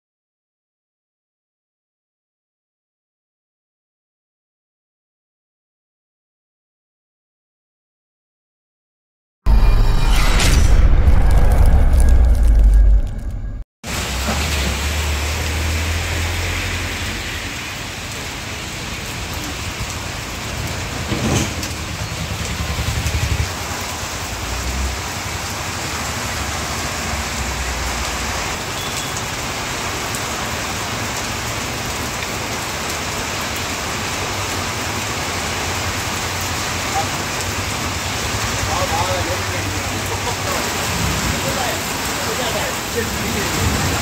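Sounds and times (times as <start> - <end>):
low rumble: 9.5 - 13.7
heavy rain on a wet street: 13.9 - 44.0.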